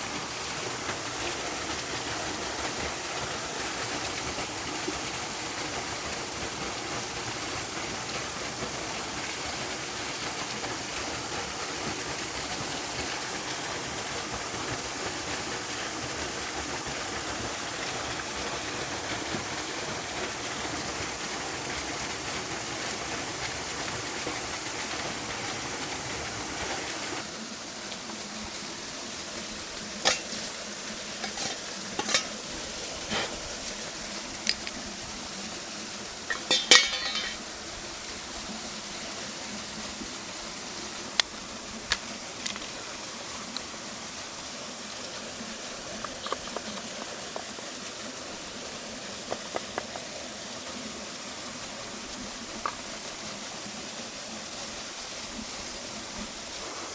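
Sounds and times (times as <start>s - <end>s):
food sizzling in a pan: 26.9s - 56.9s
metal utensils clinking: 30.0s - 33.5s, 36.2s - 37.5s, 46.0s - 47.2s.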